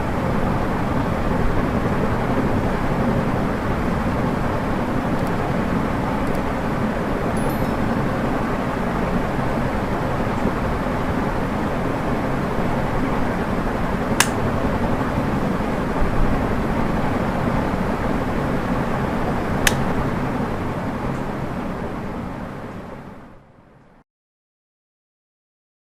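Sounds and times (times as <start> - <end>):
ceiling fan whirring: 0.0 - 24.0
sharp clicks: 14.2 - 14.4, 19.6 - 19.9.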